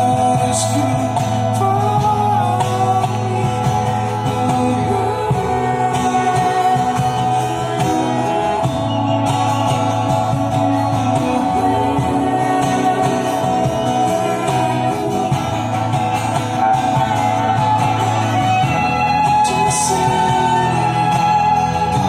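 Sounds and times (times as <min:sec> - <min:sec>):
guitar accompaniment: 0:00.0 - 0:22.0
person singing: 0:00.0 - 0:22.0.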